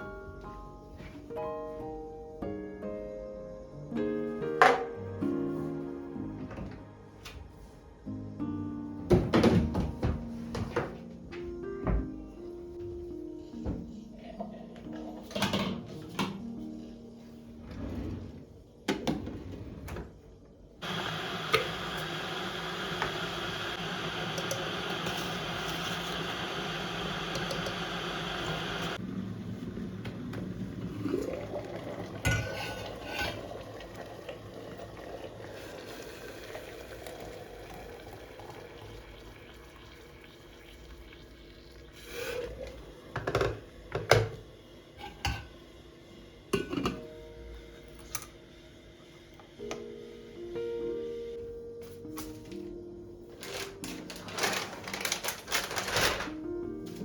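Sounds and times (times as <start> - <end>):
tap water running: 20.8 - 45.5
dishes and utensils clinking: 46.6 - 47.0
handling sounds: 53.3 - 56.4.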